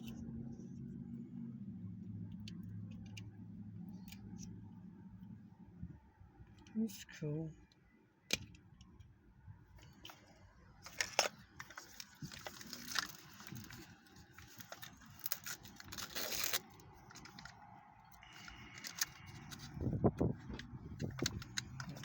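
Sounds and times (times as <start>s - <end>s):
plastic parts clicking: 8.3s - 9.1s, 10.8s - 22.0s
plastic packaging crinkling and tearing: 10.8s - 19.8s.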